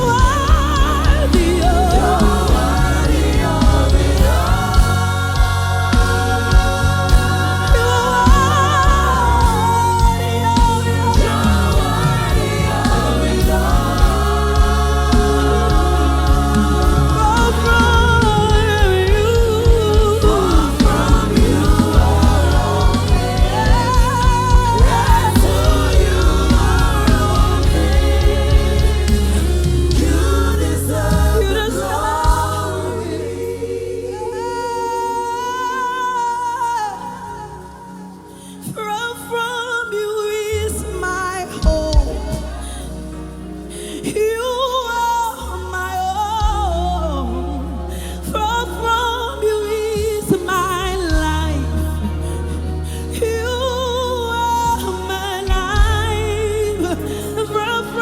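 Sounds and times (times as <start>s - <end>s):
steady drum beat: 0.0s - 33.4s
band with heavy bass: 0.0s - 38.6s, 40.5s - 58.0s
choir singing: 0.0s - 58.0s.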